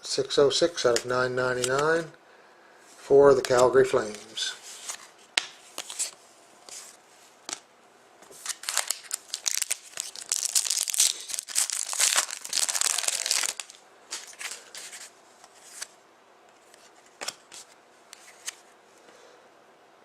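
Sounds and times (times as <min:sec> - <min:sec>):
cards clicking and rustling: 0:00.9 - 0:02.0, 0:03.4 - 0:06.8, 0:08.3 - 0:15.9, 0:16.5 - 0:18.6
card pack wrapper crinkling and tearing: 0:08.3 - 0:15.9.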